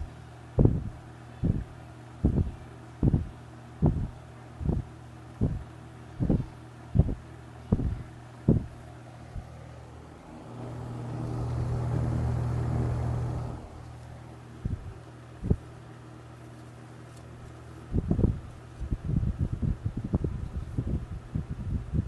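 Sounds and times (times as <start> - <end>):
electric fan running: 0.0 - 22.0.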